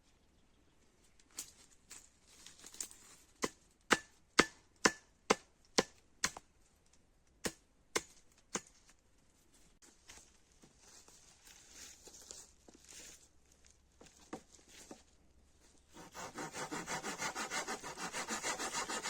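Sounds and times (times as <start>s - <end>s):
axe chopping wood: 3.4s - 6.4s, 7.4s - 8.7s.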